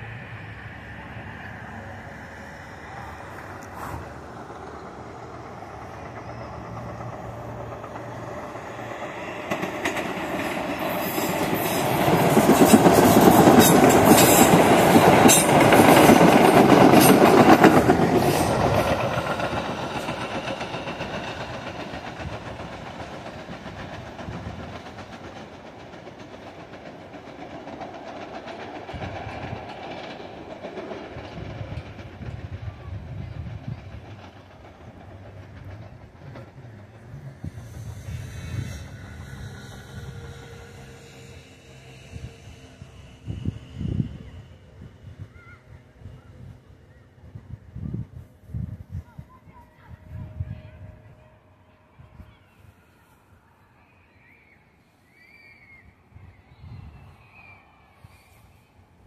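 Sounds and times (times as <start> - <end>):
electric train passing: 0.0 - 59.0
wheels clicking over track: 3.4 - 41.7.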